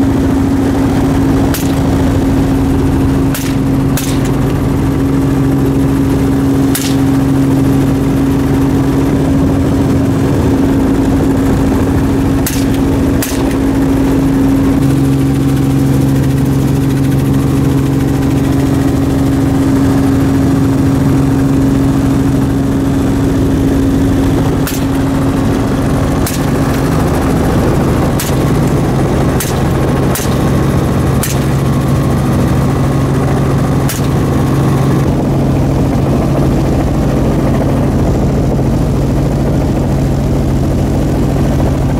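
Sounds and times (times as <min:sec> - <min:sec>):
helicopter drone: 0:00.0 - 0:41.9
short sharp cracks: 0:31.2 - 0:31.6.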